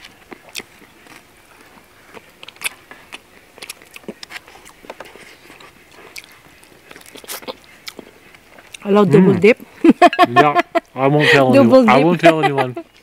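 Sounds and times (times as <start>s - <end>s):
chewing crispy fried pork: 0.0s - 9.2s.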